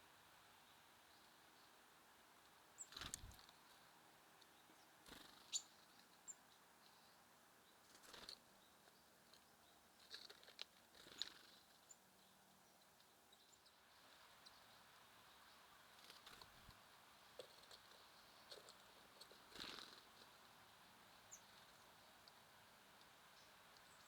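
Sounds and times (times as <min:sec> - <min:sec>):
bird wings fluttering: 0:02.9 - 0:03.5
tiny high bird chirps: 0:04.5 - 0:08.8.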